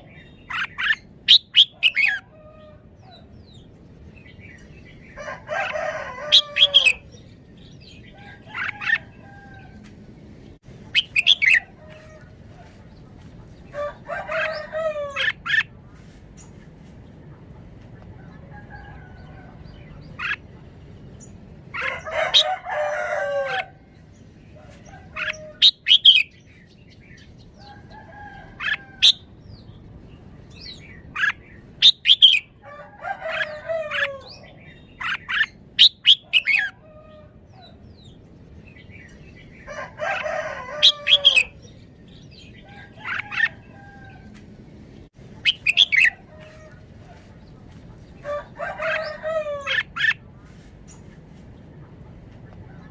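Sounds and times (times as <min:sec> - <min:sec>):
rooster crowing: 0:05.2 - 0:07.1, 0:13.7 - 0:15.4, 0:21.8 - 0:23.8, 0:32.6 - 0:34.4, 0:39.7 - 0:41.6, 0:42.6 - 0:44.4, 0:48.2 - 0:50.0
bird whistling song: 0:45.5 - 0:46.2.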